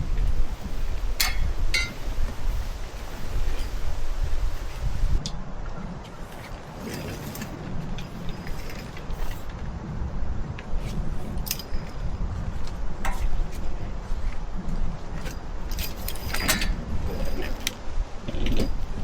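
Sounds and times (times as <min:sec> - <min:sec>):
strong wind buffeting microphone: 0:00.0 - 0:19.0
light metallic clinks and rattles: 0:00.8 - 0:02.3, 0:06.3 - 0:09.6, 0:11.3 - 0:12.1, 0:15.2 - 0:17.8.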